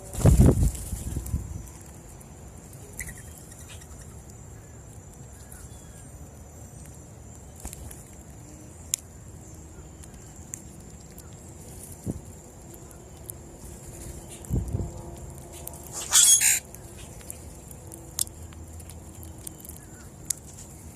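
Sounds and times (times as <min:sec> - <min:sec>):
faint bird chirps: 0:02.8 - 0:06.9.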